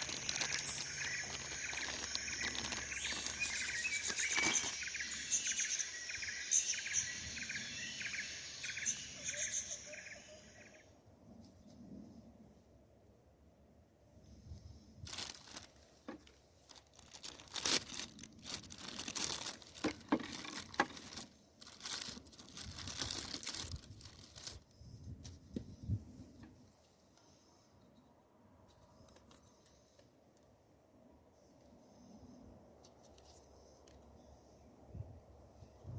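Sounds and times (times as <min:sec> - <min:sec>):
crinkling and tearing: 0:00.0 - 0:04.8, 0:15.0 - 0:25.6.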